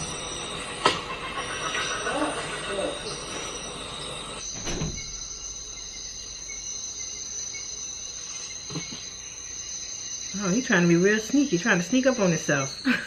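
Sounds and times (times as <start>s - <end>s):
insects buzzing: 0.0s - 13.0s
brief thump: 4.6s - 5.1s.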